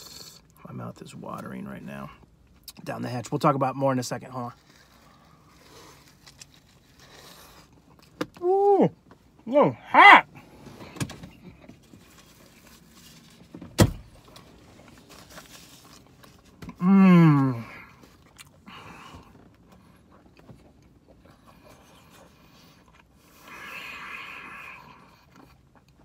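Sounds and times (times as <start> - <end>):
man chewing food: 4.6 - 8.4, 17.7 - 26.0.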